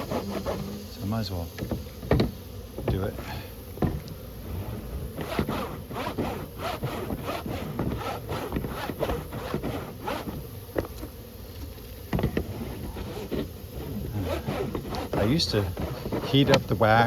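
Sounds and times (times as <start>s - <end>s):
wax scraping on plastic frame: 0.0s - 17.0s.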